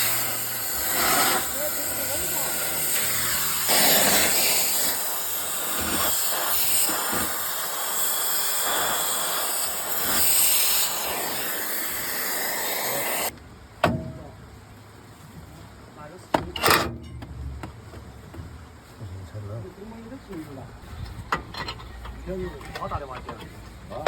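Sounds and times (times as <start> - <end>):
loud steady hissing: 0.0 - 13.3.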